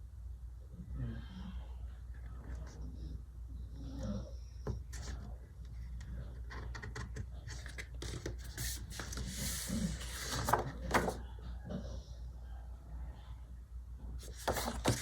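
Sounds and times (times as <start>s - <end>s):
low steady hum: 0.0s - 15.0s
paper rustling and rubbing: 7.4s - 11.2s, 14.2s - 15.0s.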